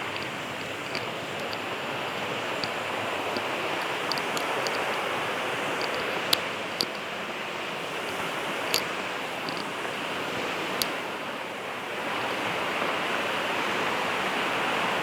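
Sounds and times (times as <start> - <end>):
sharp clicks: 0.0 - 7.1, 8.6 - 9.8.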